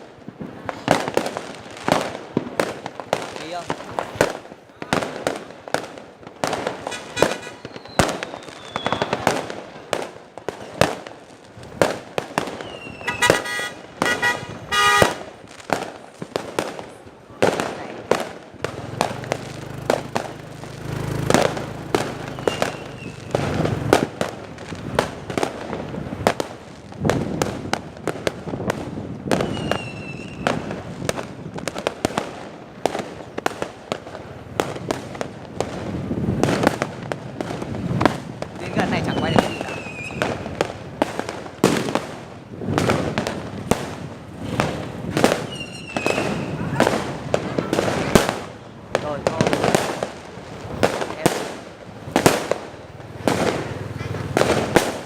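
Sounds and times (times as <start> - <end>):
fireworks bangs and crackles: 0.0 - 55.0
falling whistles: 7.5 - 9.2, 12.6 - 13.2, 22.2 - 23.3, 29.4 - 30.4, 39.1 - 40.2, 45.5 - 46.6.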